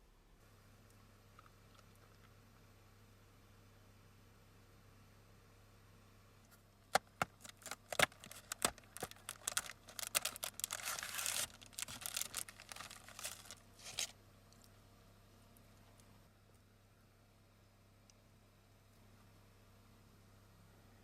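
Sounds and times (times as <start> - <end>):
packaging rustling and crinkling: 7.2 - 14.1.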